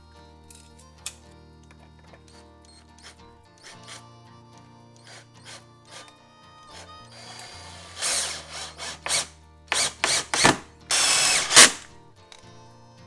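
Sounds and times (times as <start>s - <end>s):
power drill driving screws into wood: 2.7s - 4.0s, 5.0s - 6.1s, 6.7s - 11.9s.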